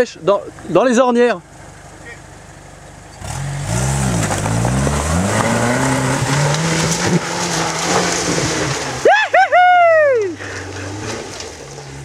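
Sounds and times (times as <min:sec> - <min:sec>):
engine pulling hard under load: 0:03.1 - 0:12.0.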